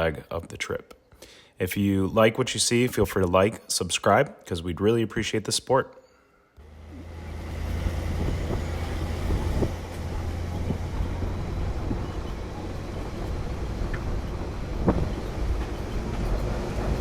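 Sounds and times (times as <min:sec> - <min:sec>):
truck engine and road rumble: 0:06.6 - 0:17.0.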